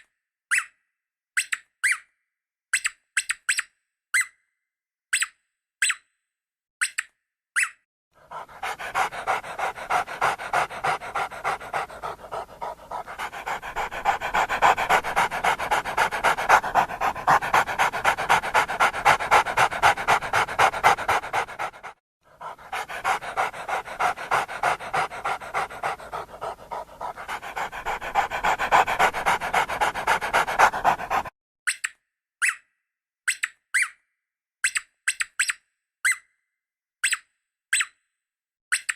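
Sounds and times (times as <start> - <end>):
dog panting: 8.2 - 31.3.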